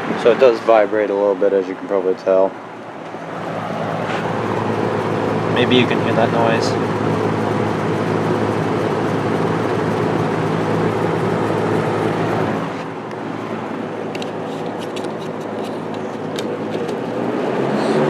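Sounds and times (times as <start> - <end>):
box fan motor hum: 2.6 - 18.0
air rushing from fan blades: 2.7 - 18.0.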